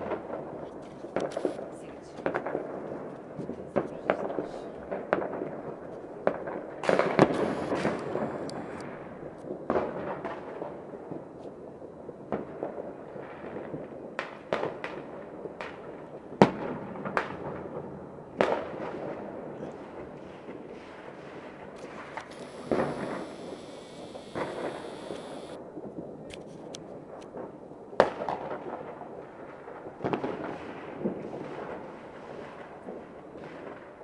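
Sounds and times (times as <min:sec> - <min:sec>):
firework bangs: 0:00.0 - 0:11.3, 0:12.3 - 0:34.0
crackling rumble of distant explosions: 0:00.0 - 0:34.0
firecracker pops: 0:00.8 - 0:10.7, 0:13.5 - 0:17.6, 0:18.4 - 0:25.6, 0:28.0 - 0:28.9, 0:29.9 - 0:33.8.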